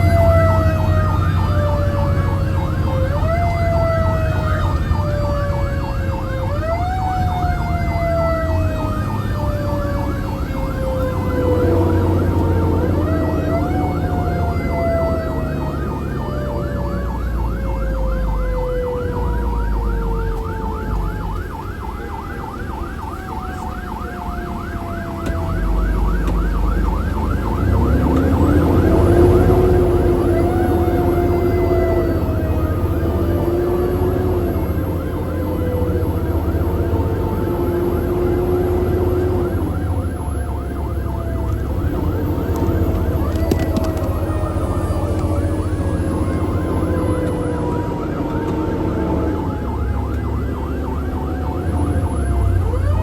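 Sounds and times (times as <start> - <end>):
fire truck engine rumbling: 0.0 - 53.0
rising held siren tone: 0.0 - 53.0
wailing siren: 0.0 - 53.0
yelping siren warble: 0.0 - 53.0.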